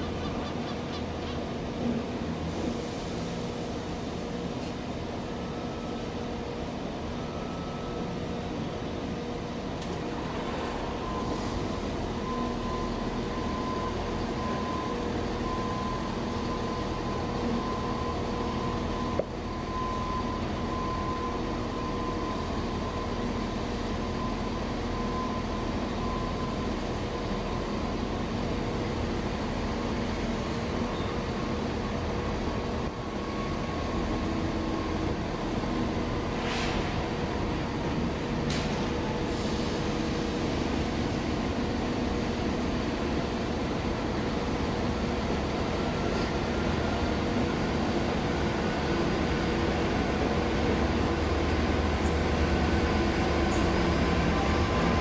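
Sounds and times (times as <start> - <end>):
diesel locomotive engine drone: 0.0 - 55.0.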